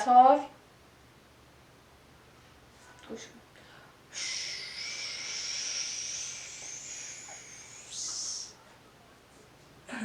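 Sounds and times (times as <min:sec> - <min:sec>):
person hissing with mouth: 0:04.1 - 0:08.6.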